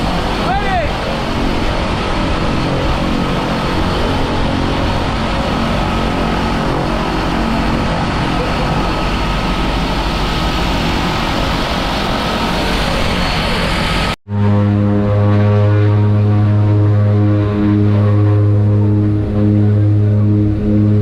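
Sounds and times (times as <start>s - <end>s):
propeller engine droning: 0.0s - 21.0s
rushing wind noise: 0.0s - 21.0s.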